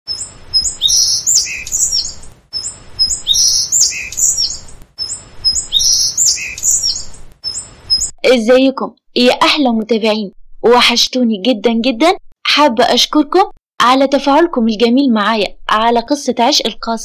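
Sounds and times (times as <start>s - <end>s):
songbird chirping: 0.1s - 8.2s.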